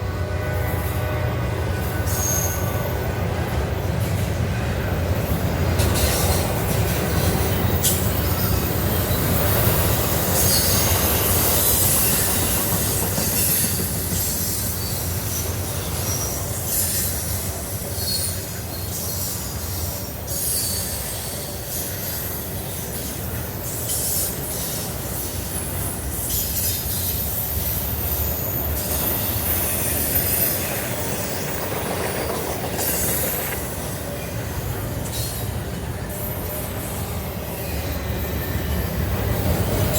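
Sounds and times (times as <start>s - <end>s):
steel wheels rumbling on rail: 0.0s - 39.9s
wheel squeal and screech: 2.1s - 2.8s, 7.6s - 23.1s, 23.7s - 34.4s.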